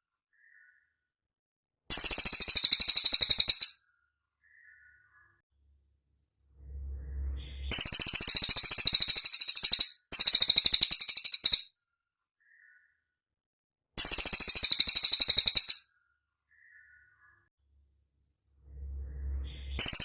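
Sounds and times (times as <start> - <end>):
bird singing high-pitched trills: 1.9 - 3.8, 6.8 - 11.7, 14.0 - 15.8, 18.8 - 20.0.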